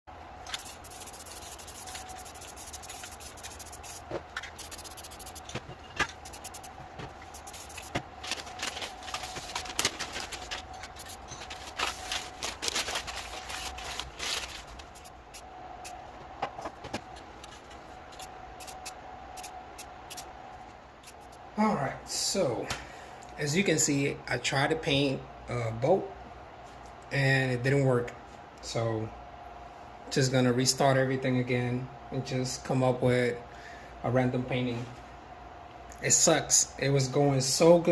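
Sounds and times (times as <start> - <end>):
faint hum: 0.1 - 37.9
paint tool scraping surface: 0.5 - 5.6, 6.2 - 8.0.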